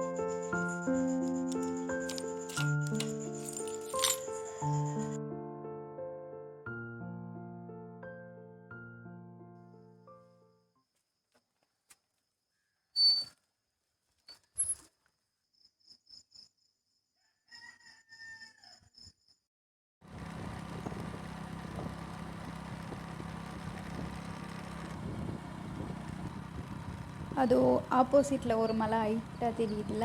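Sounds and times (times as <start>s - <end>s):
bird chirps: 13.0s - 13.3s
rooster crowing: 17.2s - 19.0s
motorbike engine running: 20.0s - 30.0s.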